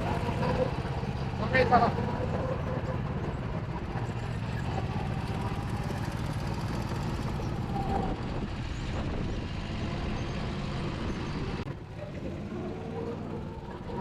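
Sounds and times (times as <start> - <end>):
go-kart engine running: 0.0 - 14.0
wind on microphone: 7.5 - 11.6.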